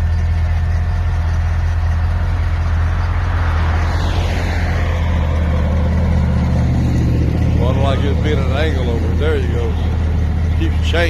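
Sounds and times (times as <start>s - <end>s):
vehicle engine idling: 0.0s - 11.0s
passing vehicle whoosh: 2.1s - 10.2s.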